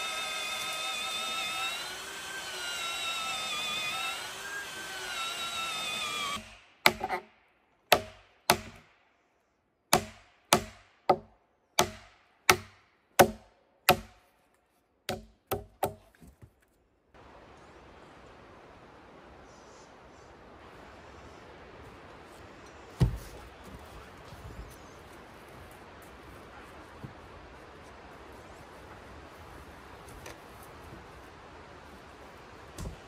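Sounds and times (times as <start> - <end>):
axe chopping wood: 6.4 - 7.3, 7.9 - 8.9, 9.9 - 14.2, 15.1 - 16.4.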